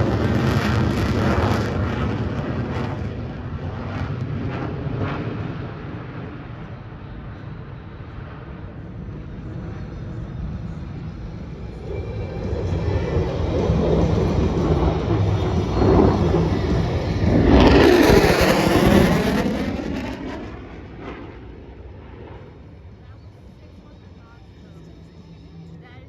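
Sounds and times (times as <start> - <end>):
aircraft passing overhead: 0.0 - 26.0.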